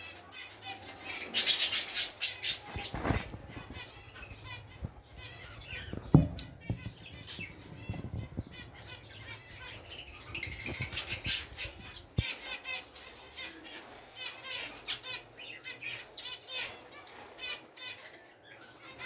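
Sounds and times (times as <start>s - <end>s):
small birds chirping: 0.0s - 19.0s
wings fluttering: 0.7s - 13.5s
soft thump: 5.7s - 8.6s
loud knock: 5.9s - 8.0s.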